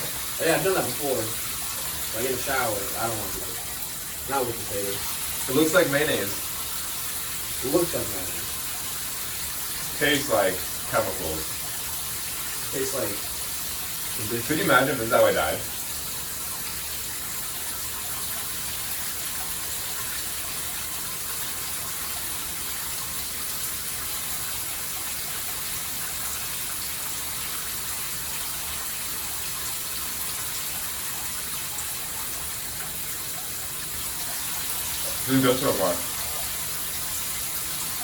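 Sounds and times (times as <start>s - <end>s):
shower water spray hissing: 0.0s - 38.0s.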